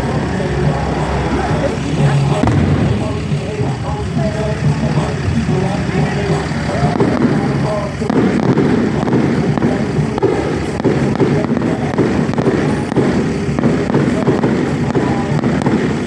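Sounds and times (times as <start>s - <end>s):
fireworks crackling and popping: 0.0s - 16.0s.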